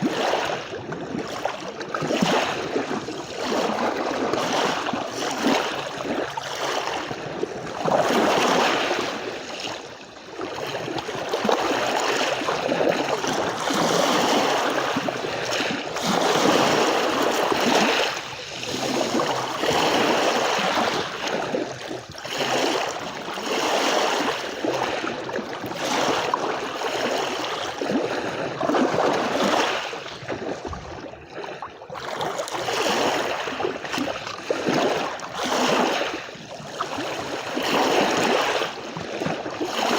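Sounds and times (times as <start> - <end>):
sea waves washing onto beach: 0.0 - 30.9.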